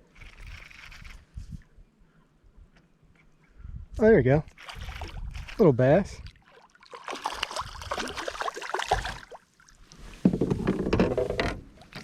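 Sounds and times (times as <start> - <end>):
fish splashing: 4.5 - 5.5, 6.3 - 9.8
rattles and knocks against hull: 10.2 - 12.0.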